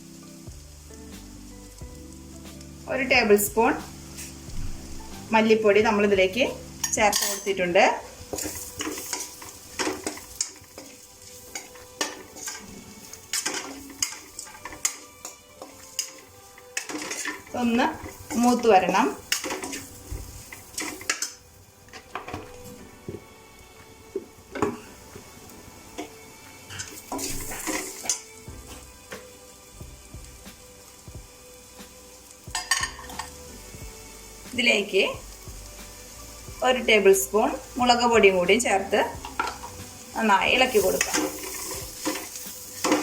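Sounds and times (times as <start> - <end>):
onions sizzling in oil: 0.0 - 43.0
spoon scraping a pan: 3.8 - 5.2, 6.5 - 22.9, 26.0 - 29.5, 32.1 - 33.6, 37.5 - 43.0.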